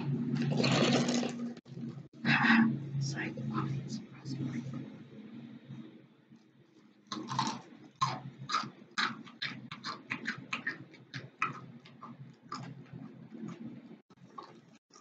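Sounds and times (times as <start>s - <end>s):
wet chewing mouth clicks: 7.1s - 15.0s.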